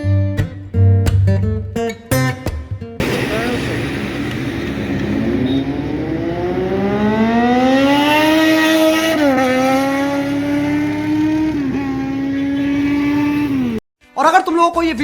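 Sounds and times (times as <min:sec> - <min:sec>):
superbike engine accelerating: 0:03.0 - 0:13.8.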